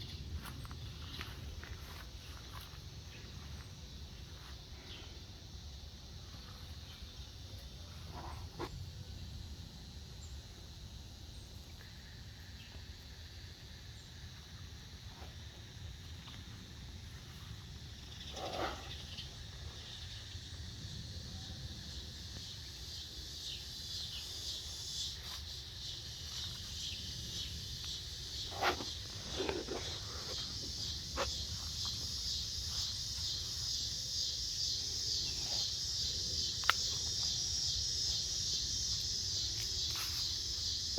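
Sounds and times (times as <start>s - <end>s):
insects pulsing chorus: 0.0s - 40.9s.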